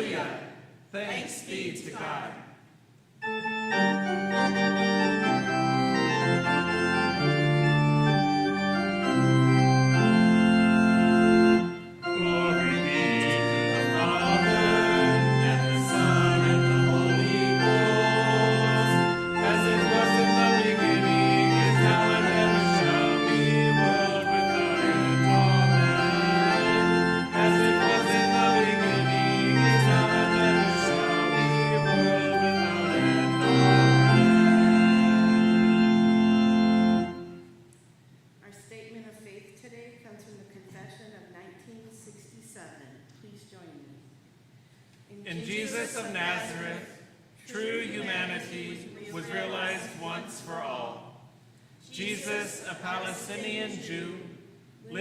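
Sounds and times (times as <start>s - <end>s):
organ playing held chords: 3.2s - 37.7s, 45.5s - 46.9s, 47.6s - 51.0s.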